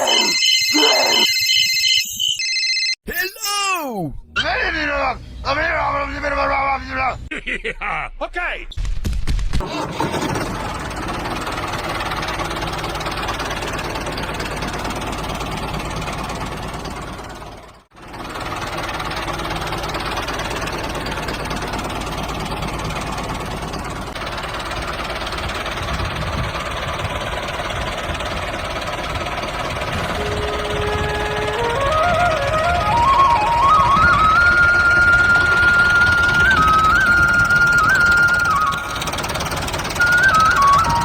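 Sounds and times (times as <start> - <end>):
small engine chugging: 9.6 - 41.0.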